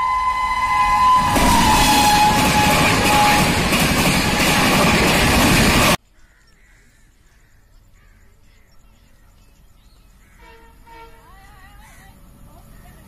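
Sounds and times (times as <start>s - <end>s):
train coaches rushing past: 0.0s - 6.0s
faint bird calls: 6.1s - 13.0s.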